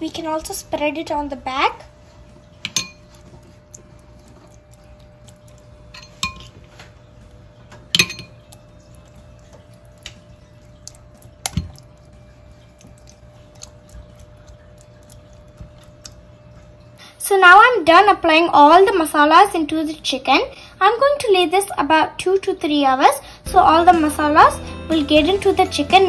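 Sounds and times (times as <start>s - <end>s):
spoon clinking on plate and bowl: 2.7s - 3.1s, 5.9s - 6.5s, 7.9s - 8.5s.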